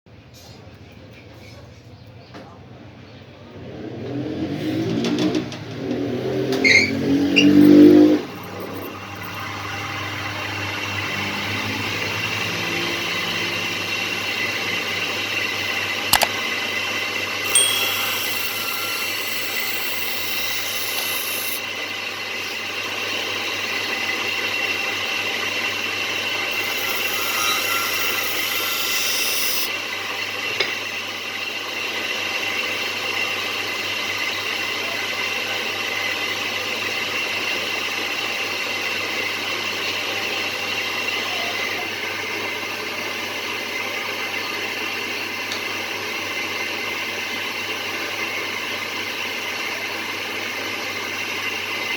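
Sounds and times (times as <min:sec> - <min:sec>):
electric grinder running: 0:07.6 - 0:29.9
blade hissing on grinding wheel: 0:17.2 - 0:29.8.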